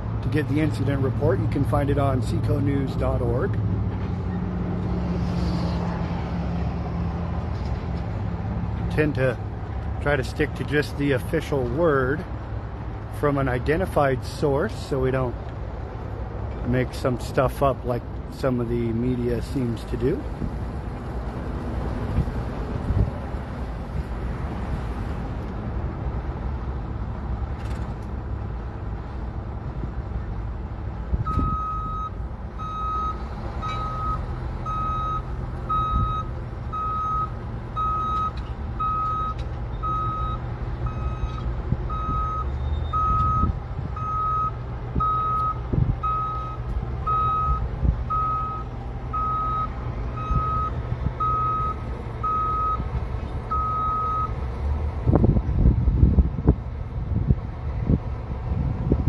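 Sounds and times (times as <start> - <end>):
heavy equipment engine rumble: 0.0 - 59.0
reversing alarm beeping: 31.3 - 52.8, 53.5 - 54.4.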